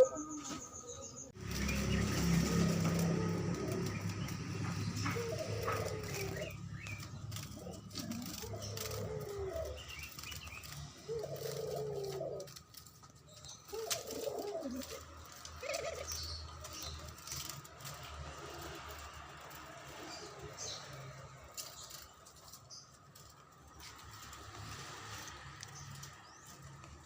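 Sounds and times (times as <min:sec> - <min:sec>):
doves cooing: 0:00.0 - 0:22.1.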